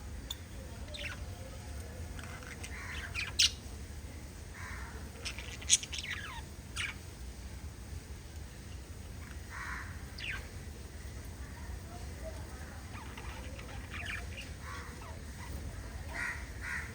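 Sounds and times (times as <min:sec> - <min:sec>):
soft parrot chatter: 0:00.2 - 0:03.7, 0:04.6 - 0:07.1, 0:09.1 - 0:16.9
parrots chirping and squawking: 0:00.9 - 0:01.3, 0:02.2 - 0:03.6, 0:04.6 - 0:07.1, 0:09.2 - 0:10.6, 0:12.8 - 0:16.9.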